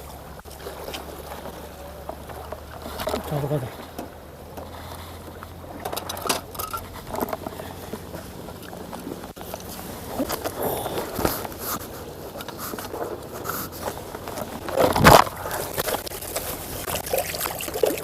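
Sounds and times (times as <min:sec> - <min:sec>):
scraping clicking and rustling: 0:00.4 - 0:18.0.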